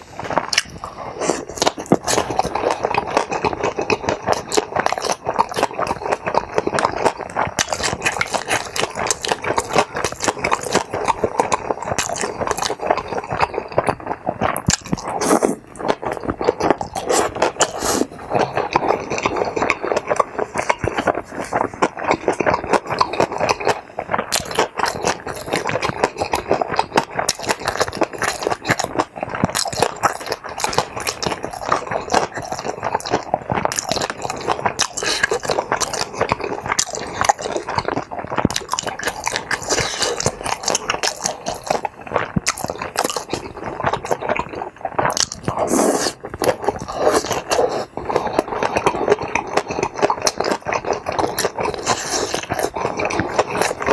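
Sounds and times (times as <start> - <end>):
close chewing and biting: 0.0 - 53.9.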